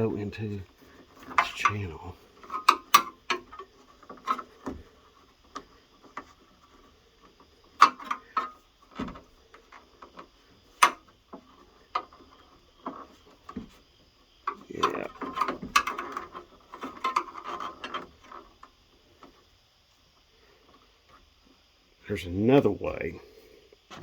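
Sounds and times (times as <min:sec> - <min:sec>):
clicks and taps of rubber gasket: 0:00.6 - 0:13.8, 0:14.4 - 0:19.4.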